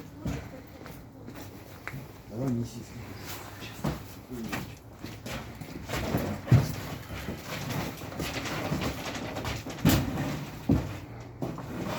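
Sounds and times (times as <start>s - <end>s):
heavy thuds and shuffling: 3.6s - 11.9s.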